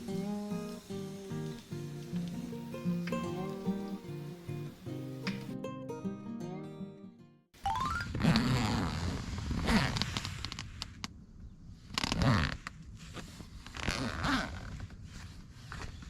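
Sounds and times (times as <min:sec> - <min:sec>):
fabric rustling and scraping: 0:08.3 - 0:11.0, 0:12.0 - 0:16.0.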